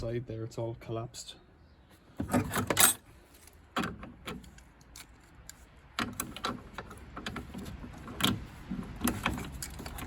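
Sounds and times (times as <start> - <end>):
metallic clicks and clatters: 3.8 - 10.0.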